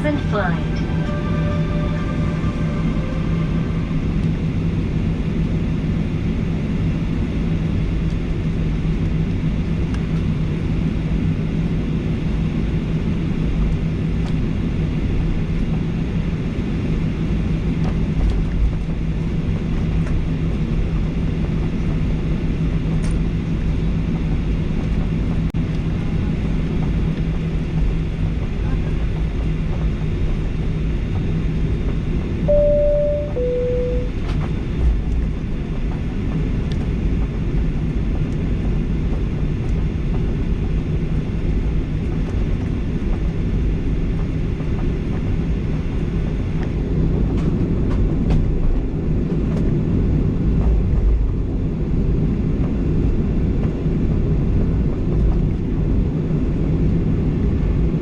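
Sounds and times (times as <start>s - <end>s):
two-tone cabin chime: 0.0s - 4.5s, 32.5s - 34.2s
aircraft cabin engine rumble: 0.0s - 58.0s.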